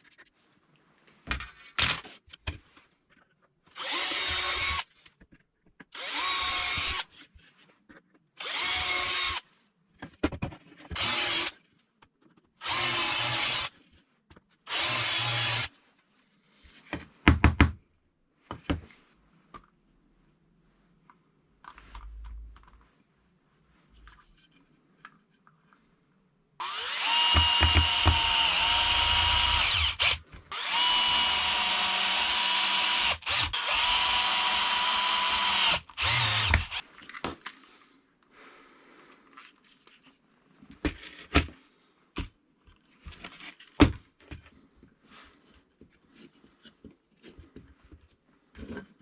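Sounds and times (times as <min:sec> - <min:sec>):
power tool whining: 0:26.6 - 0:36.8.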